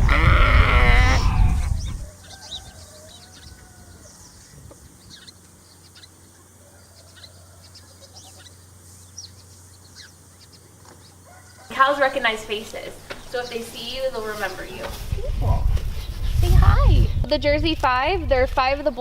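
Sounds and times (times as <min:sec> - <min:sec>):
animal call: 0:00.0 - 0:04.4
small birds chirping: 0:01.0 - 0:11.7, 0:12.8 - 0:15.1
chickens clucking: 0:01.2 - 0:11.8.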